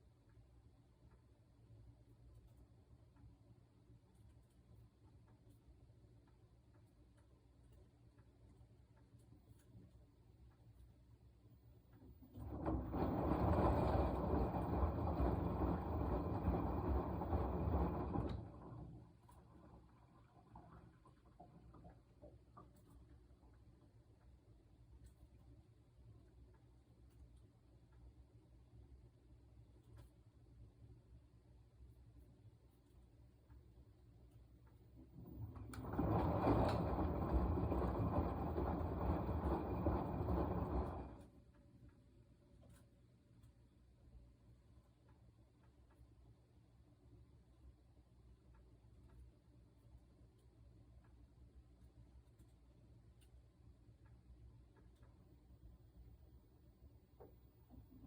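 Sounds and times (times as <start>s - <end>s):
washing machine drum churning: 12.0s - 22.4s, 35.0s - 41.3s.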